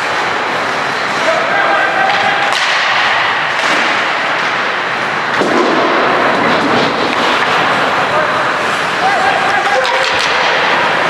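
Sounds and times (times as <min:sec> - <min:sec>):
skates scraping on ice: 0:00.0 - 0:11.0
sticks and puck knocking: 0:09.7 - 0:11.0.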